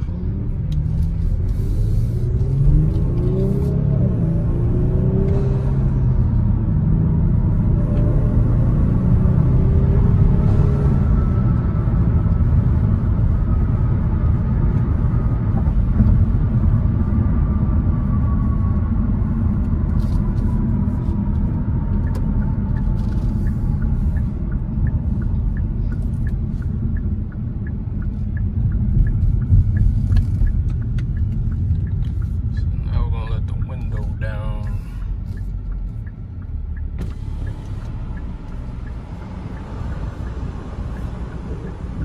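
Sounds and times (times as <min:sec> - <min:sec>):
engine and road rumble: 0:00.0 - 0:42.0
faint regular ticking: 0:22.0 - 0:42.0.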